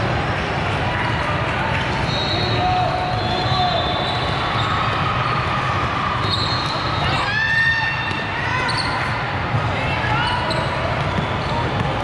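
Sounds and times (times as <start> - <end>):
crowd chatter echoing: 0.0 - 12.0
balls bouncing and being struck: 7.9 - 12.0.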